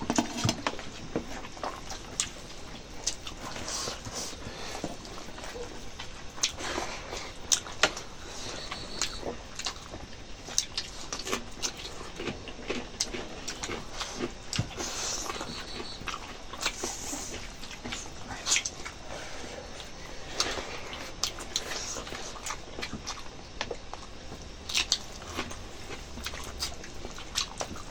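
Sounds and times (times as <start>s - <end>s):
chewing with lip smacks: 0.4s - 27.9s.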